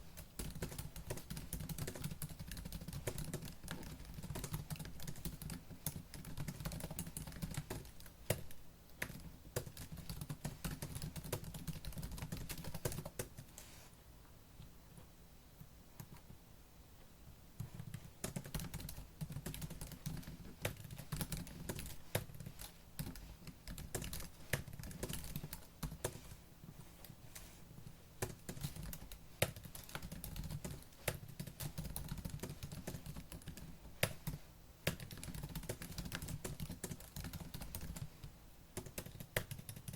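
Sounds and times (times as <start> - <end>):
fast typing on laptop keyboard: 0.1 - 13.5, 17.6 - 26.4, 28.2 - 39.9.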